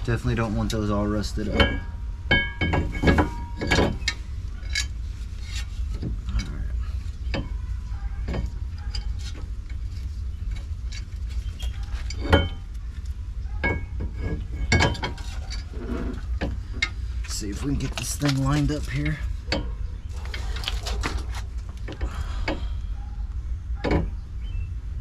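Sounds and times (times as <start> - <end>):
metallic clicks and knocks: 13.5 - 22.7.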